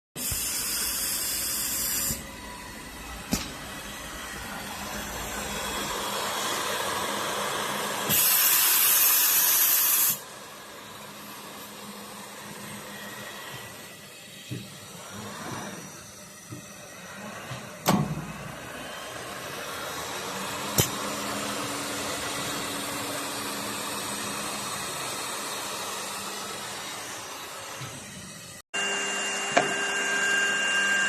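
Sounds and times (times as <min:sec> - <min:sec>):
edge banding machine running: 0:00.5 - 0:31.0
loud hissing bursts: 0:08.0 - 0:10.2.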